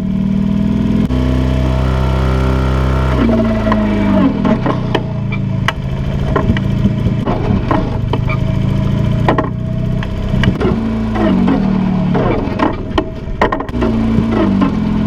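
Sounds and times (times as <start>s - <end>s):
tractor engine running: 0.1s - 15.0s
clanks and knocks: 4.4s - 8.4s, 9.1s - 14.8s.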